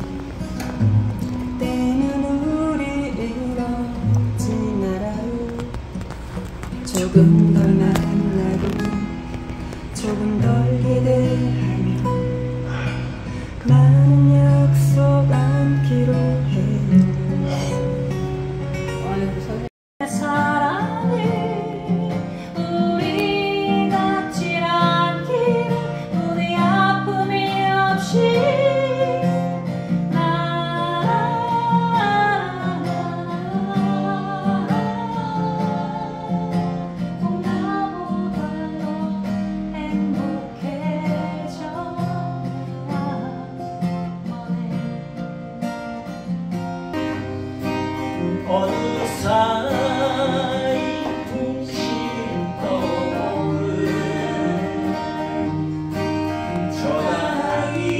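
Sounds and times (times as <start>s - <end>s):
acoustic guitar strumming: 0.0s - 57.9s
person singing: 6.8s - 9.1s, 9.9s - 18.0s, 48.0s - 55.7s, 56.4s - 57.9s.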